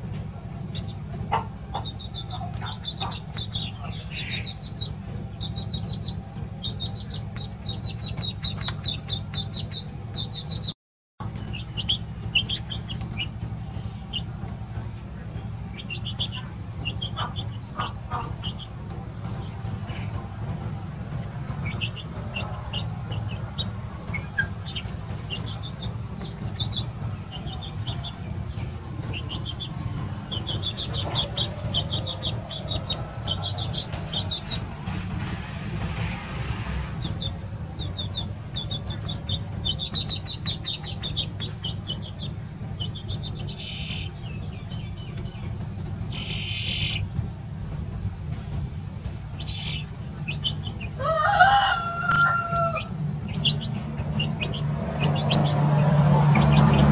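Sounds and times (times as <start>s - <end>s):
small birds chirping: 0.0s - 35.3s, 37.0s - 47.3s, 48.9s - 56.9s
steady low rumble: 0.0s - 56.9s
rooster crowing: 51.0s - 52.9s.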